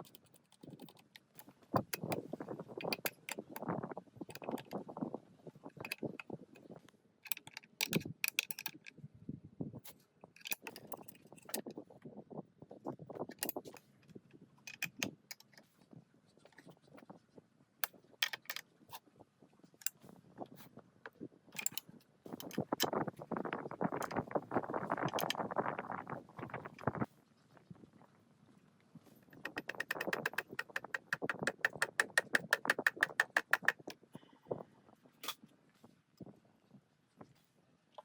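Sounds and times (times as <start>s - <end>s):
metal parts clinking: 21.6s - 21.8s.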